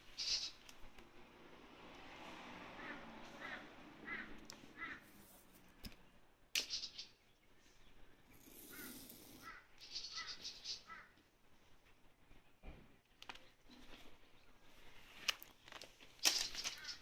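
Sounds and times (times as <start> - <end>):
short bird calls: 0.0 - 0.7, 2.8 - 5.2, 6.6 - 11.2, 16.2 - 17.0.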